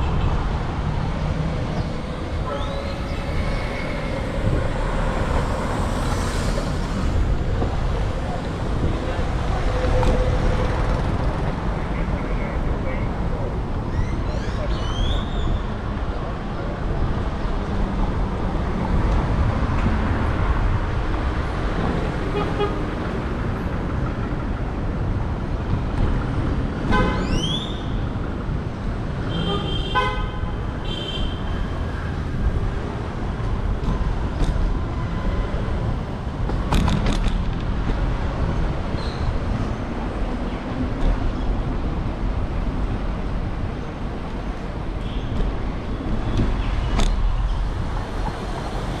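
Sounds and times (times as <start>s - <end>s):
rumble of car traffic: 0.0s - 49.0s
car horns honking: 29.3s - 31.4s.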